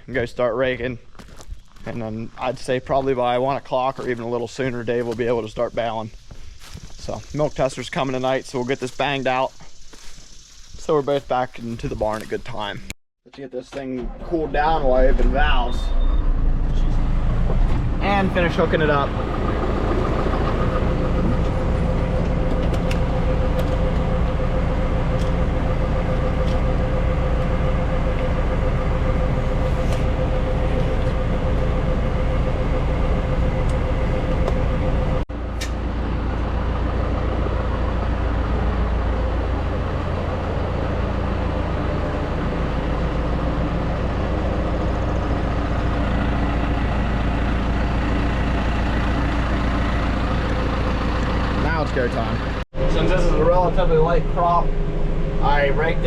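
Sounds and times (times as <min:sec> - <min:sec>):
tractor engine idling: 0:14.0 - 0:56.0.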